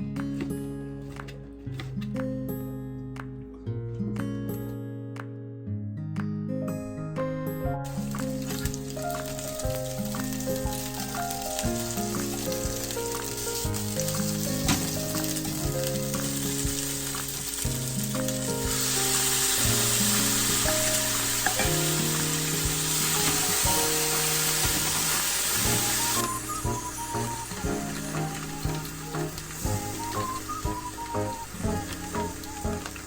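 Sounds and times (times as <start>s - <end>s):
background piano music: 0.0s - 5.3s, 6.5s - 33.0s
food sizzling in a frying pan: 7.9s - 33.0s.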